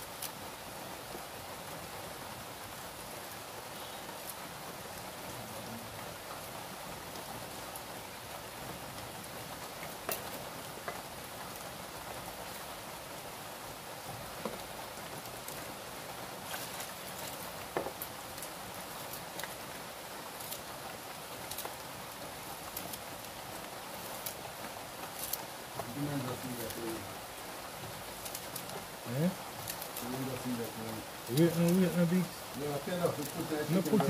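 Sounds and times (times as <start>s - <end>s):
steady rain patter: 0.0s - 34.0s.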